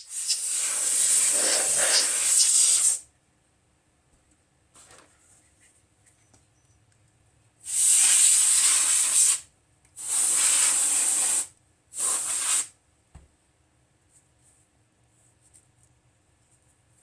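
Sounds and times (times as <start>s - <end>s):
hissing air spray blasts: 0.0s - 3.0s, 7.7s - 9.4s, 10.0s - 12.7s.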